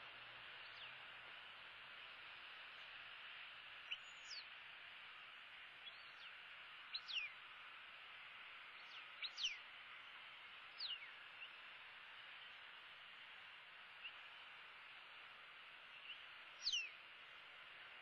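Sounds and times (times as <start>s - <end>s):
steady background hiss: 0.0s - 18.0s
bird chirping: 0.6s - 1.0s, 3.8s - 4.5s, 5.8s - 7.4s, 8.7s - 9.7s, 10.8s - 11.6s, 15.8s - 17.0s.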